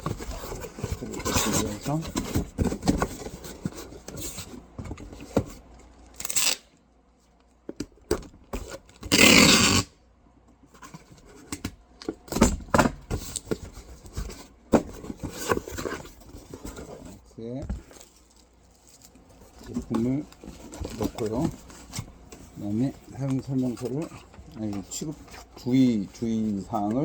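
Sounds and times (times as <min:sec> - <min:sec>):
cardboard box handled: 0:00.0 - 0:05.6, 0:12.3 - 0:27.0.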